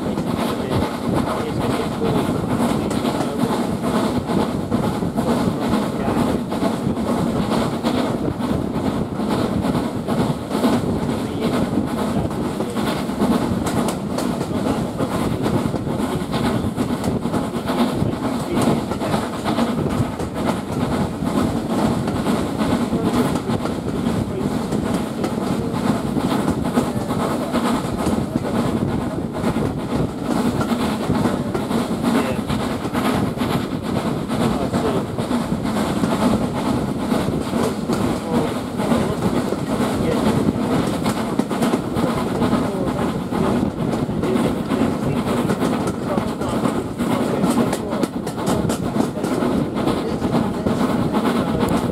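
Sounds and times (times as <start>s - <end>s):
train wheels rumbling on rail: 0.0s - 51.9s.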